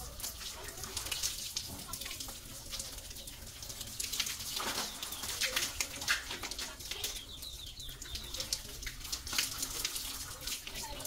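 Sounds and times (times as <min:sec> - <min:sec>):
birds chirping: 0:04.6 - 0:09.2.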